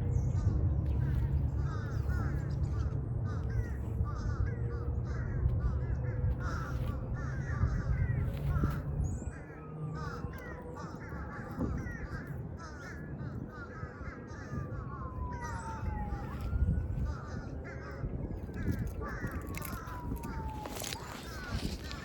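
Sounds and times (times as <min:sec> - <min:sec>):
crows cawing: 0:00.0 - 0:22.0
low rumble: 0:00.0 - 0:22.0.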